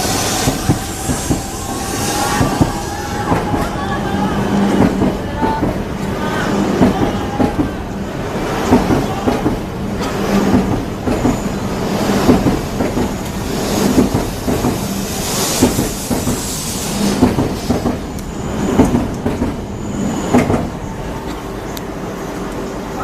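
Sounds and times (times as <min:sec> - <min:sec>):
high wheel squeal: 0:00.0 - 0:09.4, 0:14.8 - 0:21.8
train wheels clattering over rail joints: 0:08.4 - 0:19.6.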